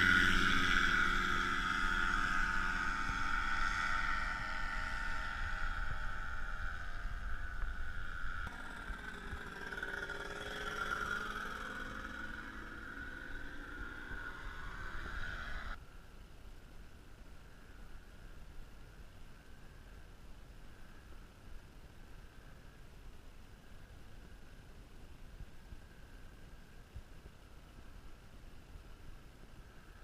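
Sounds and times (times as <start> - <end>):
paramotor engine running: 0.0 - 15.8
wind on microphone: 0.0 - 15.8.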